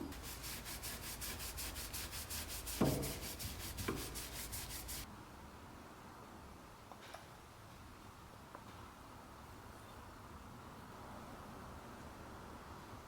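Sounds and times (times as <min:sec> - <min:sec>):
hand sanding strokes: 0:00.1 - 0:05.1
knock: 0:02.7 - 0:03.2.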